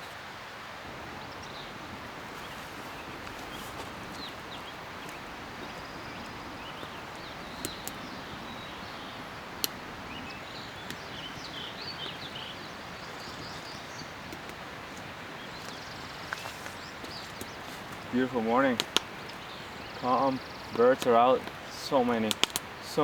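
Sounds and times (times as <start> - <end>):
small birds chirping: 0.0 - 23.0
sharp ticks: 7.4 - 8.1, 18.6 - 19.4, 20.0 - 23.0.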